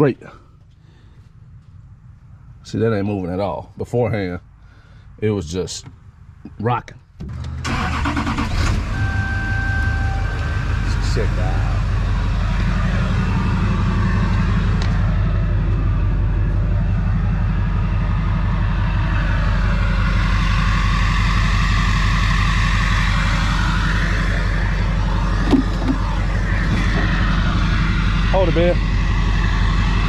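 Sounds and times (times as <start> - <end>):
truck engine idling: 7.4 - 30.0.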